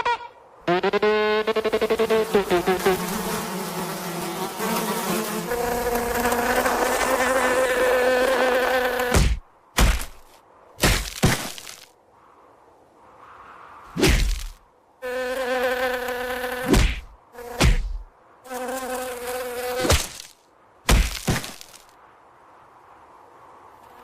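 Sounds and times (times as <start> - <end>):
cartoon insect buzzing: 0.0 - 9.2.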